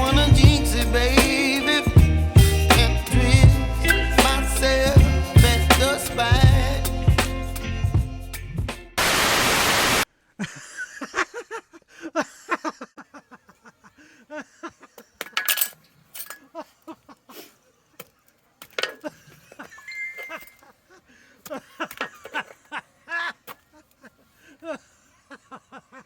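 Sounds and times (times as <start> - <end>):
background music: 0.0 - 9.0
loud hiss: 9.0 - 10.1
light clicks and clinks: 15.2 - 16.5.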